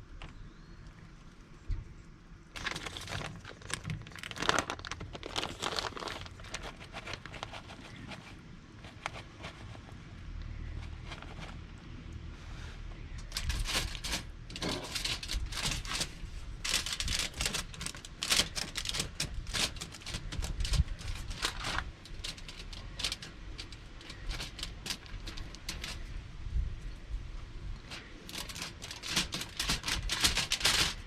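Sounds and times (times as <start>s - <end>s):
low background rumble: 0.0s - 31.0s
small hard objects clattering: 2.6s - 9.9s, 13.2s - 26.1s, 27.8s - 31.0s.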